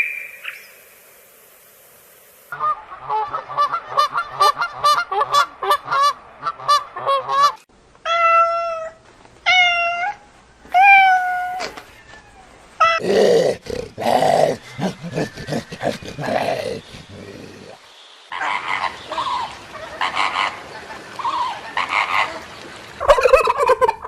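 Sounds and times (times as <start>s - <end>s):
cat meowing: 8.1s - 13.0s
harsh noisy grunts: 13.0s - 17.8s.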